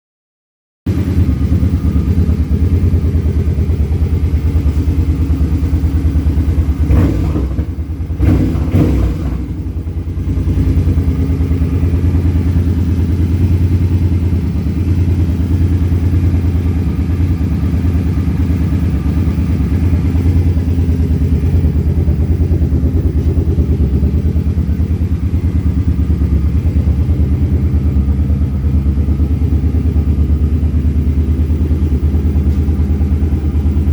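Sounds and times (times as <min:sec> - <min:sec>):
motorcycle engine idling: 0:00.9 - 0:33.9.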